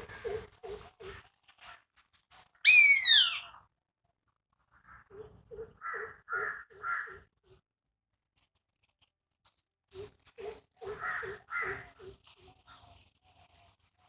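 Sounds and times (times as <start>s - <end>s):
bird short calls: 2.7s - 3.5s
bird whistling downward: 2.7s - 3.5s.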